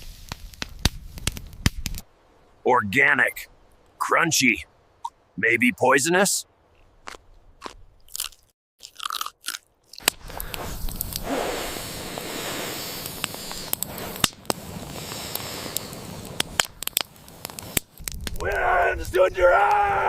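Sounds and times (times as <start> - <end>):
crunchy chewing: 6.8 - 11.3.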